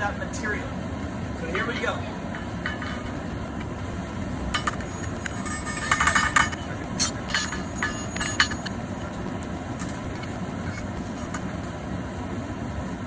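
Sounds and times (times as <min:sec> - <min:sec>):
steady low rumble: 0:00.0 - 0:13.0
hammer striking steel on anvil: 0:01.6 - 0:03.3, 0:04.5 - 0:09.1.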